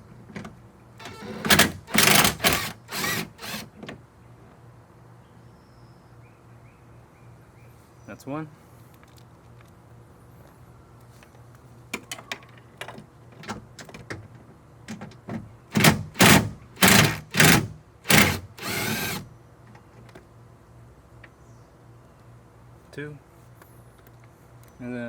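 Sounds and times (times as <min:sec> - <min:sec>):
ratchet wrench ratcheting: 0:01.0 - 0:03.6, 0:15.8 - 0:19.2.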